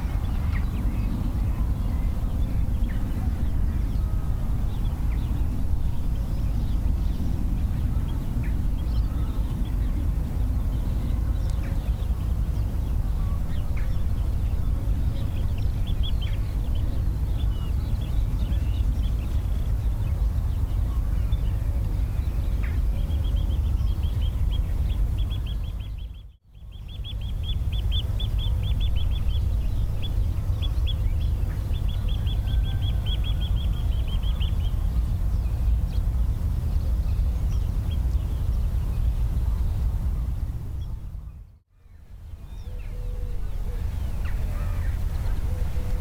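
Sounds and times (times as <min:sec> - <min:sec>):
steady low rumble: 0:00.0 - 0:46.0.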